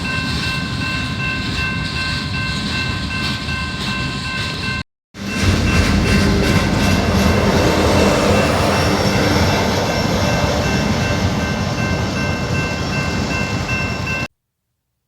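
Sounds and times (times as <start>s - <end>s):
freight train cars rumbling: 0.0s - 14.3s
high-pitched squeal: 5.2s - 14.3s.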